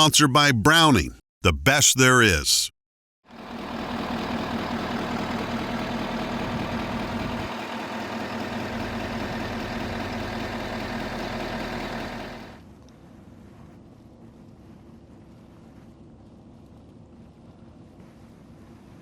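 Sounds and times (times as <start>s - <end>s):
vehicle engine idling: 3.4s - 12.6s.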